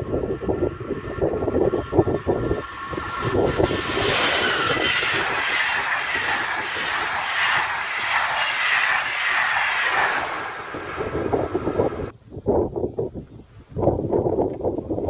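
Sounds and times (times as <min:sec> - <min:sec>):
train wheels on rails: 0:00.0 - 0:12.1.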